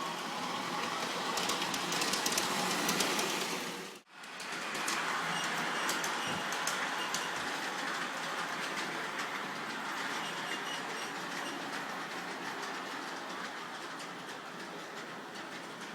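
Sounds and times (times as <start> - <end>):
model train motor whirring: 0.1 - 11.6.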